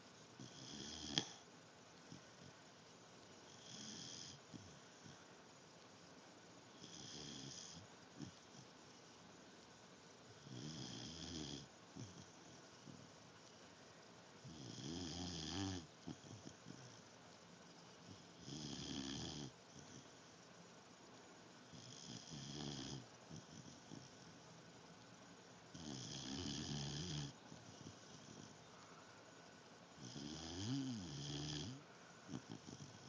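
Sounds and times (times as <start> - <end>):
dog snoring: 0.4 - 1.4, 3.4 - 5.2, 6.7 - 9.0, 10.4 - 13.2, 14.4 - 17.1, 17.7 - 20.4, 21.6 - 24.4, 25.7 - 28.7, 30.0 - 33.0.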